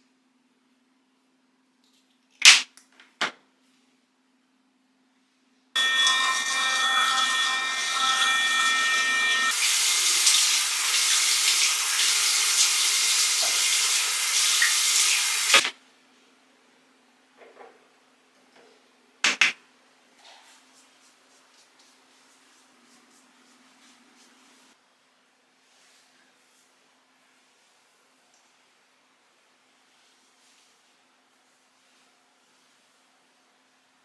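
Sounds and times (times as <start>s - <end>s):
tap water running into sink: 5.8s - 15.6s.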